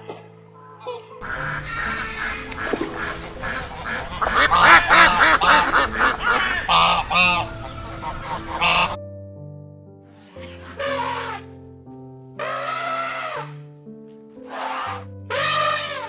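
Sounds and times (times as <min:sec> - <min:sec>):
soft background music: 0:00.0 - 0:16.0
flock of birds calling: 0:01.2 - 0:09.0, 0:14.4 - 0:16.0.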